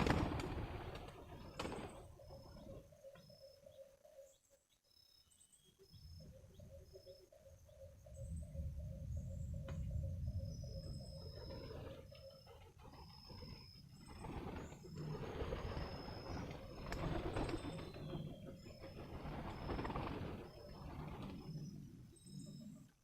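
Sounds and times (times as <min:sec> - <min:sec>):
rapidly pulsing bird call: 0:06.0 - 0:22.9.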